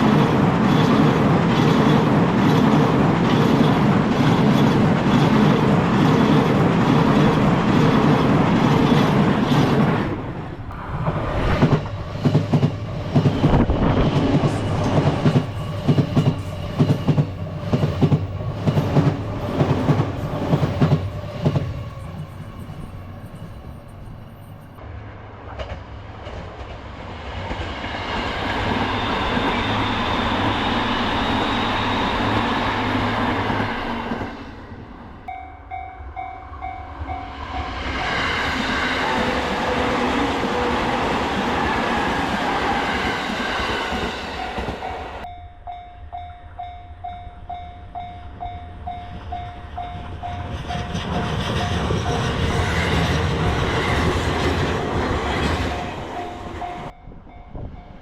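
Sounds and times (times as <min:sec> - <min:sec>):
train wheel and rail rumble: 0:00.0 - 0:58.0
crossing warning bell ringing: 0:35.2 - 0:38.1, 0:44.3 - 0:52.7, 0:55.2 - 0:58.0.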